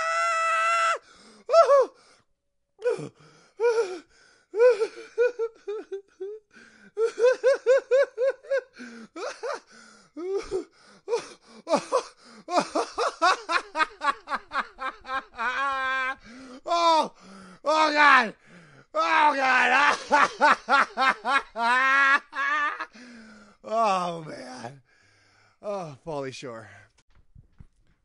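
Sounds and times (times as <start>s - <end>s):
gasping breaths: 1.0s - 2.2s, 2.8s - 5.1s, 6.5s - 7.0s, 8.7s - 12.5s, 16.2s - 17.7s, 18.4s - 19.0s, 22.9s - 23.6s, 24.7s - 25.6s
person laughing hard: 4.6s - 6.4s, 7.0s - 9.6s, 11.7s - 16.2s, 19.2s - 22.9s.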